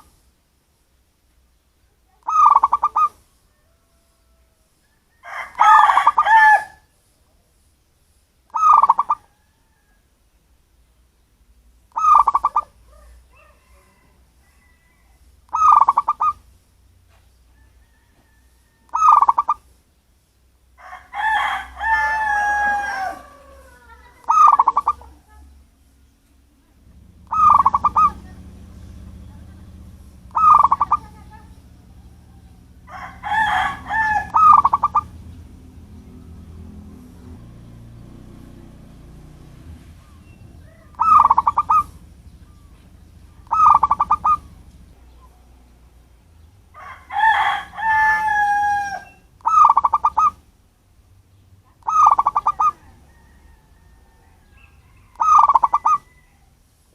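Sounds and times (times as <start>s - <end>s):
dove cooing trilled calls: 2.1s - 6.9s, 8.5s - 9.8s, 11.9s - 16.5s, 17.7s - 19.7s, 21.0s - 25.5s, 26.8s - 50.5s, 51.7s - 56.3s
bird wavering call: 2.3s - 3.8s, 8.5s - 9.4s, 11.9s - 16.4s, 18.9s - 19.7s, 22.0s - 25.2s, 27.0s - 35.4s, 39.8s - 45.4s, 47.9s - 50.4s, 51.8s - 52.9s, 54.5s - 56.3s
low steady hum: 19.9s - 52.1s.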